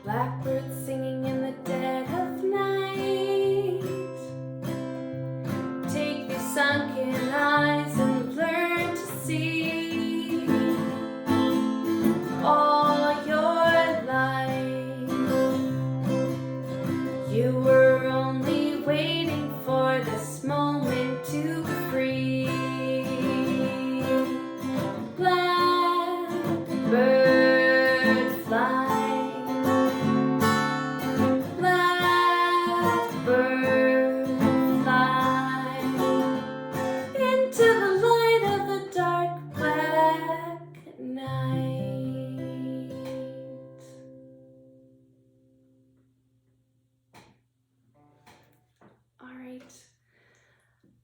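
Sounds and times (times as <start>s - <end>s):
woman singing: 0.0s - 4.4s, 5.8s - 11.5s, 12.1s - 16.3s, 17.0s - 44.1s
acoustic guitar playing: 0.0s - 45.9s.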